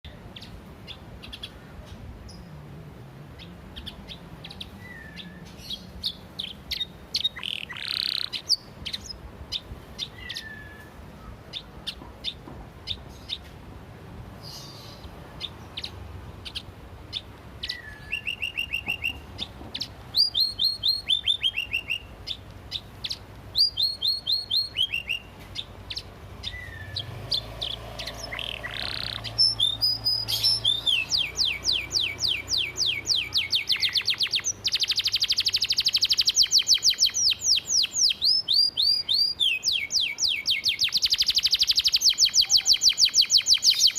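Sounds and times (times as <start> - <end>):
canary chirps: 0.1 - 2.5, 3.4 - 13.5, 14.4 - 43.9
canary rapid trills: 25.9 - 38.2.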